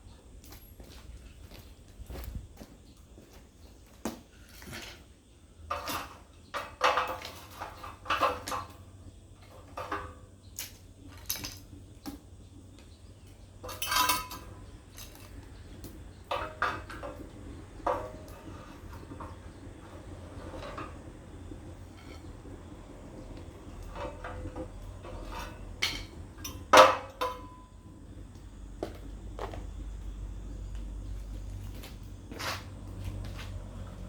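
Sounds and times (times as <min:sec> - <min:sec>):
metal pieces clanking: 0:13.6 - 0:15.3.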